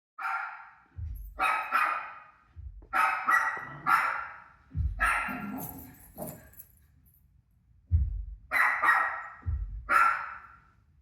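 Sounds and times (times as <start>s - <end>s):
dog barking: 0.2s - 0.8s, 1.4s - 2.3s, 2.9s - 6.5s, 8.5s - 10.7s
dog barking from tv: 0.2s - 6.4s, 8.5s - 10.7s
low thuds: 0.9s - 1.7s, 2.5s - 4.0s, 4.6s - 6.8s, 7.9s - 8.5s, 9.4s - 10.0s.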